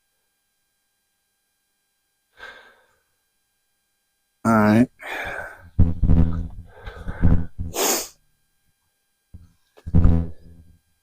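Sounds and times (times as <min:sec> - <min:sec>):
man's breathy intakes: 0:05.0 - 0:05.7, 0:06.6 - 0:08.1
man sneezing: 0:07.7 - 0:08.2.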